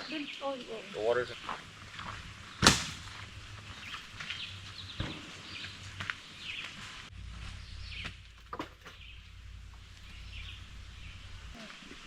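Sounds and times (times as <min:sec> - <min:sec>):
bird chirps: 0:08.8 - 0:12.0.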